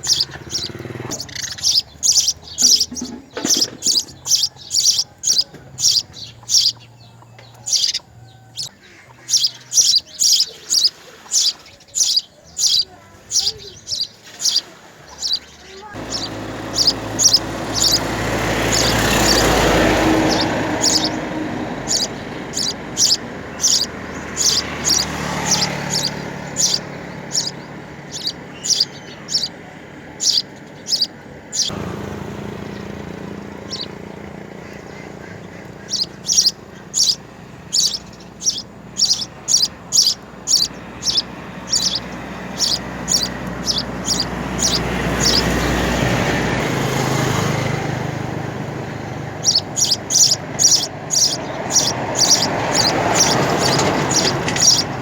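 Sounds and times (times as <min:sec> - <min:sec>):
small birds chirping: 0:00.0 - 0:55.0
vehicle passing: 0:00.0 - 0:55.0.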